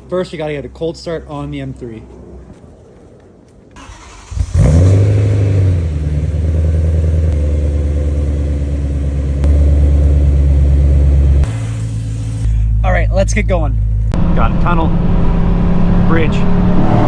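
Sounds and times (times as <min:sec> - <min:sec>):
car starter cranking: 0:03.8 - 0:05.4
car engine revving and idling: 0:03.8 - 0:17.0.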